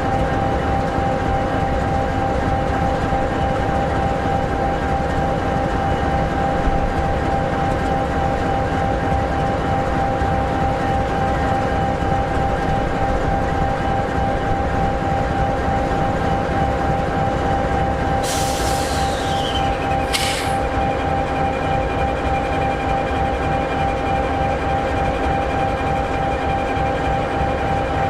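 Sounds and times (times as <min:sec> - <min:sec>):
diesel locomotive idling: 0:00.0 - 0:28.0
hiss with falling high tone: 0:18.2 - 0:20.6.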